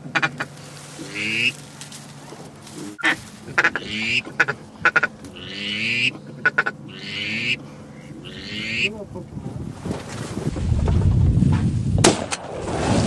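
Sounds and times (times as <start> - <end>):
ducks quacking: 0.0 - 1.7, 2.6 - 10.5.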